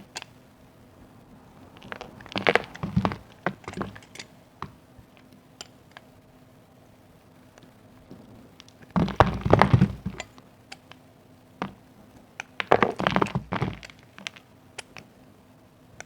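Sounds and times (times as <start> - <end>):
soap crunching and cracking: 1.8 - 4.1, 12.4 - 15.0.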